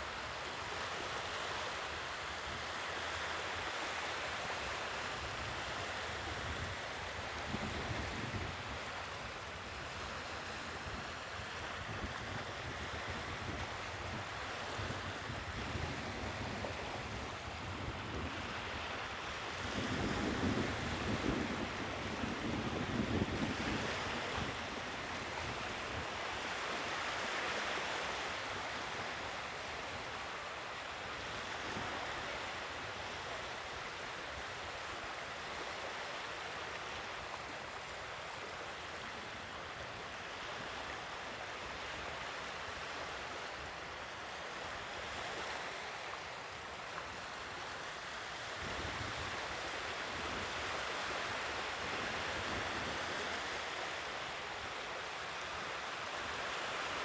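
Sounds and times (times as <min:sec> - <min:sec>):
sea waves breaking on shore: 0:00.0 - 0:57.0
wind on microphone: 0:05.4 - 0:26.6.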